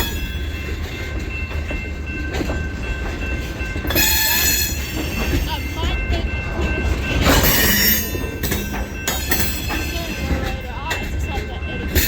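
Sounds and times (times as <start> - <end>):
freight train rumbling past: 0.0 - 12.0
shrill wheel squeal: 3.9 - 5.5.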